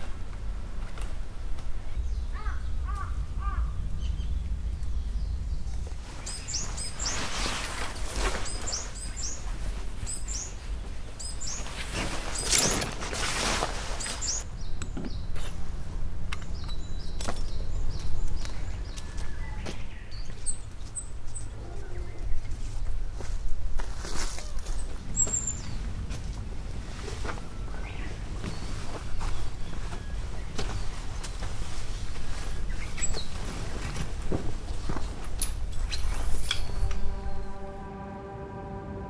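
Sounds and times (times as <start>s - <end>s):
steady low rumble: 0.0s - 7.1s, 36.6s - 39.0s
small birds chirping: 1.7s - 23.0s, 26.8s - 34.0s
rushes of noise: 36.6s - 39.0s.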